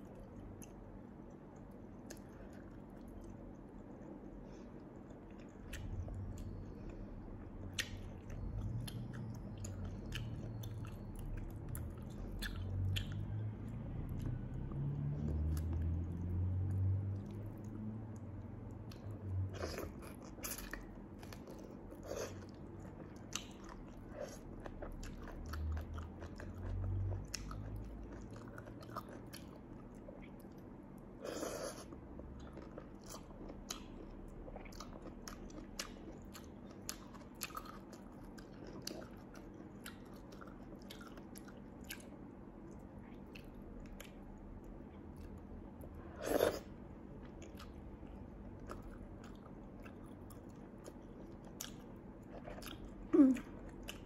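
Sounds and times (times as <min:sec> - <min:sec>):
chewing with wet mouth clicks: 0:00.0 - 0:31.1, 0:31.8 - 0:45.8, 0:46.4 - 0:54.0.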